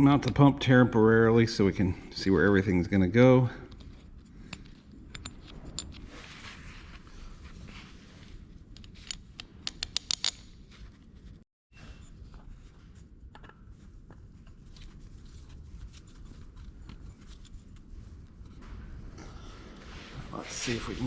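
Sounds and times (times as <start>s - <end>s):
metallic clicks and taps of tools: 8.8s - 10.4s.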